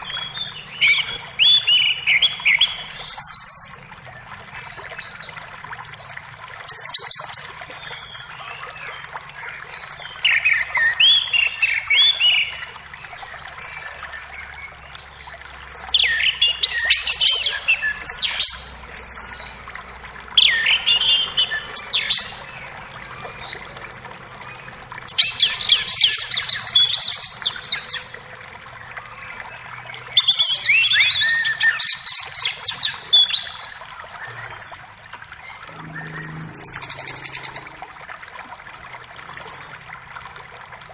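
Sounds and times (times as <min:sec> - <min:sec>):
running creek: 0:00.0 - 0:40.9
birds singing: 0:35.6 - 0:38.0
fast falling whistled bird notes: 0:35.6 - 0:38.1
bird short high note: 0:35.7 - 0:38.1.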